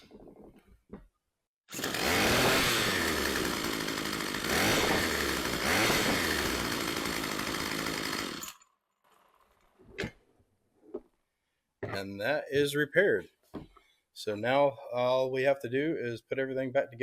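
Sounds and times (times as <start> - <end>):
weed eater motor running: 1.7 - 8.6.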